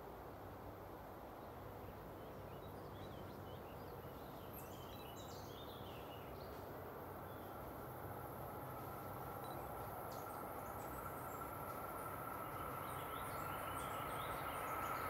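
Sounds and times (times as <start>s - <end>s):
low outdoor background rumble: 0.0s - 15.0s
bird chirping: 2.2s - 6.7s, 9.4s - 15.0s.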